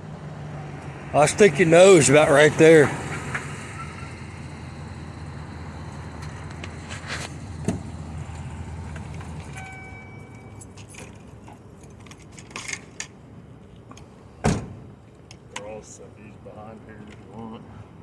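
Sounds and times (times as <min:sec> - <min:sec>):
vehicle engine idling: 0:00.0 - 0:12.0
keys jingling: 0:09.1 - 0:12.4
chime tone: 0:09.6 - 0:10.7.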